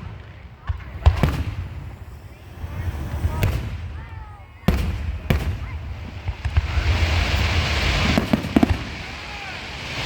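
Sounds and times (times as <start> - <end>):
firework sharp pops: 0.0 - 2.3, 4.6 - 9.2
firework bangs: 0.0 - 10.0
firework crackling hiss: 0.0 - 10.0.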